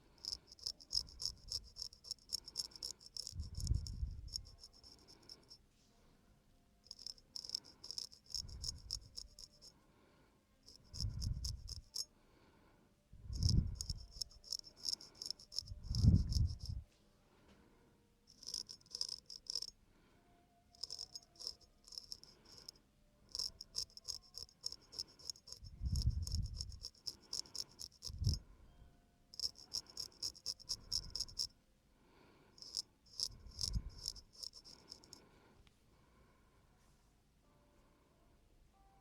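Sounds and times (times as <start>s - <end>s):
razor scraping skin: 0.2s - 5.6s, 6.9s - 9.7s, 10.7s - 12.0s, 13.4s - 16.7s, 18.3s - 19.7s, 20.8s - 28.4s, 29.4s - 31.5s, 32.6s - 35.2s.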